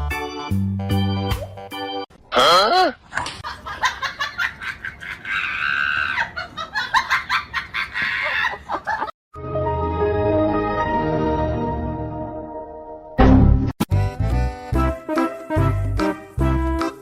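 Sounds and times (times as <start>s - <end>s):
person laughing hard: 2.4s - 9.1s.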